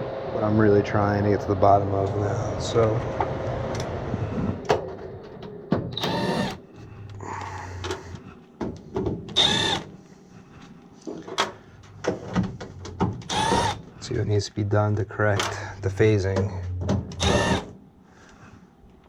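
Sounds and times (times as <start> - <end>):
low steady hum: 0.0 - 19.0
cordless drill spinning: 6.0 - 6.6, 9.4 - 9.9, 13.3 - 13.8, 17.2 - 17.7.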